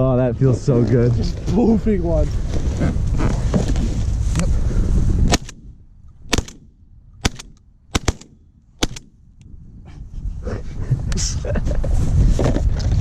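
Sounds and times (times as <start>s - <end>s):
shotgun shots: 5.3s - 9.2s.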